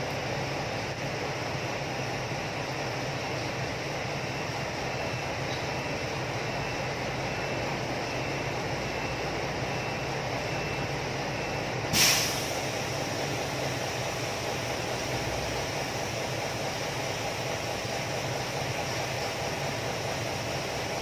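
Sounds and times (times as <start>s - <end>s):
short sharp hiss: 11.9s - 12.7s.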